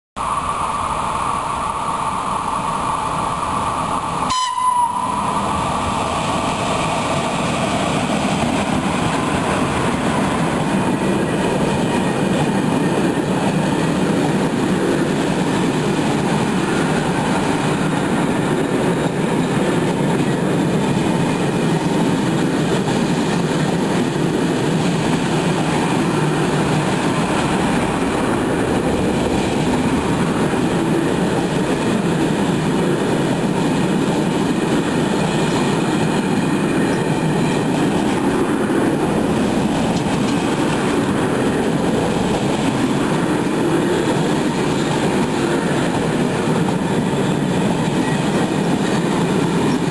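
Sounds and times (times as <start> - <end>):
freight train rumbling past: 0.2 - 49.9
locomotive horn: 4.3 - 5.2.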